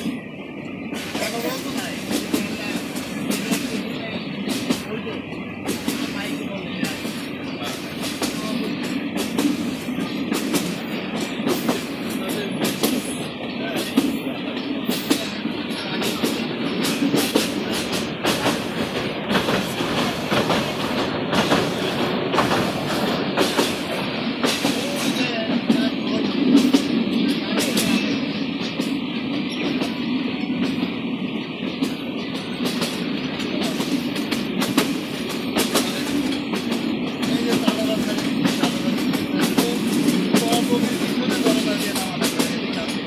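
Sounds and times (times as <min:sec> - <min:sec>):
train rumbling: 0:00.0 - 0:43.0
wheels clacking over rail joints: 0:04.5 - 0:28.1.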